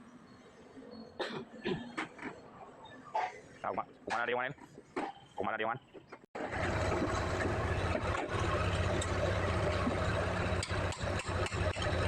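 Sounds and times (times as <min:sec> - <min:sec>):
diesel engine running: 0:06.4 - 0:12.0.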